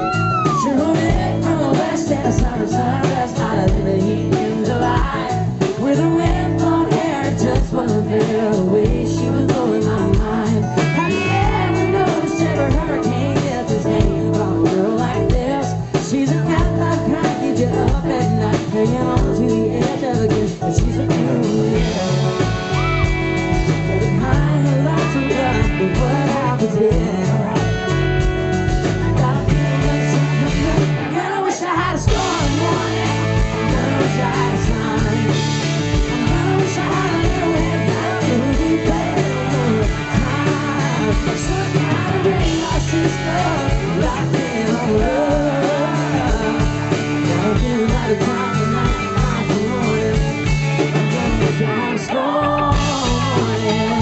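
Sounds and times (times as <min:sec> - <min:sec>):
guitar: 0:00.0 - 0:54.0
lead vocal singing: 0:00.0 - 0:54.0
drum beat: 0:32.1 - 0:51.6.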